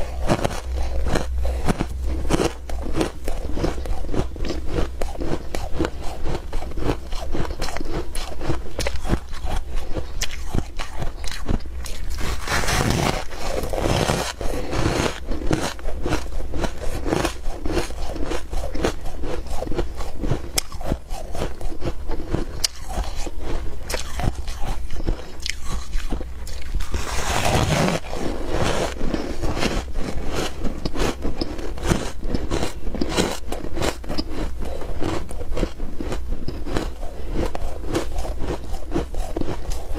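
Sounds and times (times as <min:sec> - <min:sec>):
person chewing crunching ice: 0:00.0 - 0:39.9.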